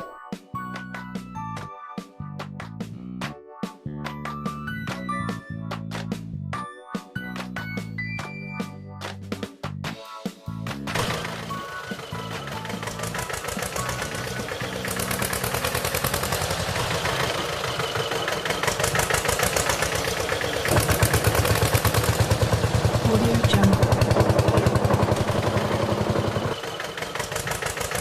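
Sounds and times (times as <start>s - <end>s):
tractor engine chugging: 10.9s - 28.0s.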